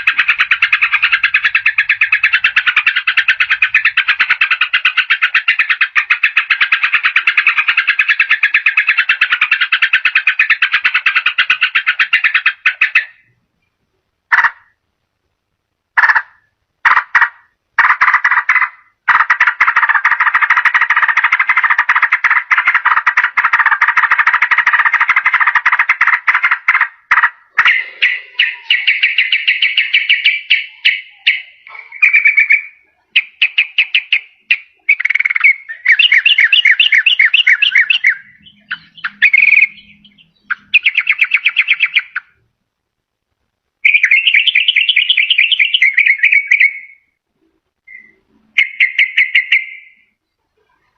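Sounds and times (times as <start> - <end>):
bird singing rapid trills: 0.0 - 13.3, 27.6 - 42.4, 43.8 - 47.1, 47.9 - 50.3.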